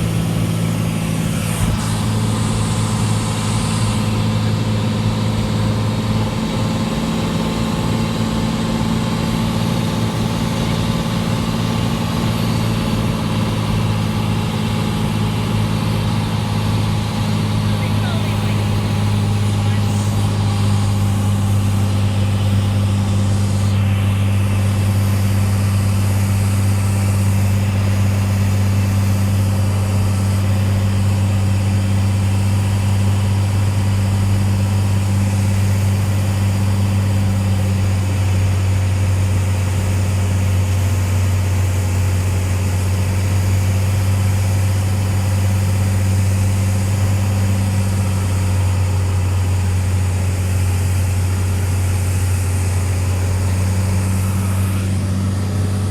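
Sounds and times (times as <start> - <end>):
plane engine and propeller droning: 0.0 - 55.9.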